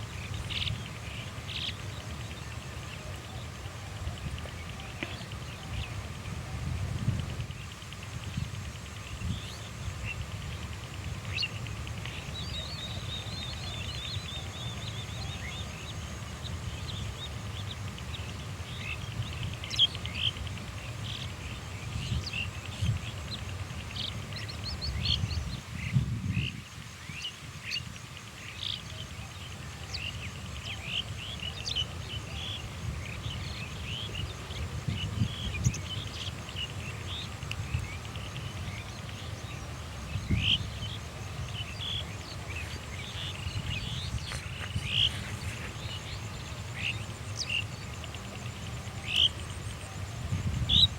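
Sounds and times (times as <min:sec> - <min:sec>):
birds chirping: 0:27.1 - 0:50.9
steady low rumble: 0:34.9 - 0:50.8.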